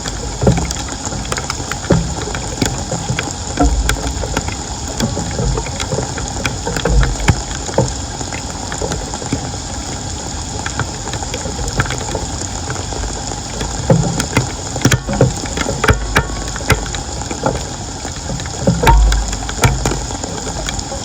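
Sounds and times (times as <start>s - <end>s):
floodwater rushing: 0.0s - 21.0s
short knocks: 18.7s - 20.8s.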